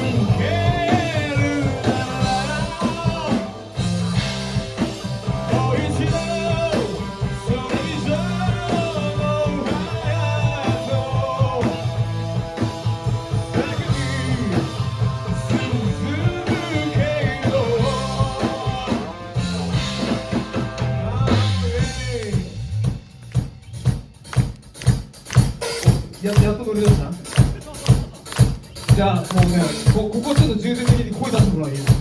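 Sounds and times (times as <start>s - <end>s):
person singing: 0.0s - 3.8s, 5.2s - 12.0s, 13.4s - 19.6s
drum hits: 0.0s - 32.0s
live rock band playing: 0.0s - 32.0s.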